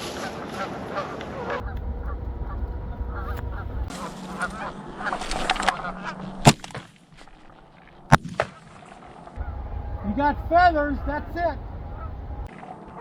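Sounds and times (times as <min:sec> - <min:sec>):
geese honking: 0:00.6 - 0:06.5, 0:09.4 - 0:12.5.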